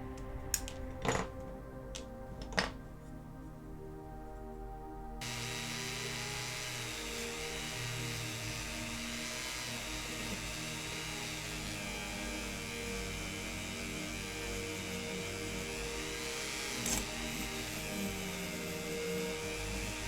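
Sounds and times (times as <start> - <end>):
background music: 0.0 - 20.0
rotary wire brush on metal: 5.2 - 20.0.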